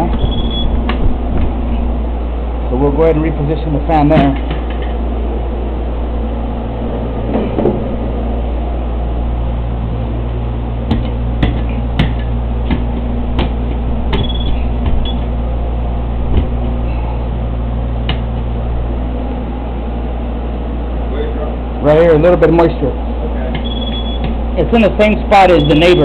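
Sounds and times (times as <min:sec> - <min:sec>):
fan knocks and clicks: 0:00.0 - 0:01.7, 0:03.9 - 0:05.0, 0:07.2 - 0:08.1, 0:10.8 - 0:15.4, 0:16.2 - 0:16.8, 0:17.9 - 0:18.5
fan humming: 0:00.0 - 0:26.0.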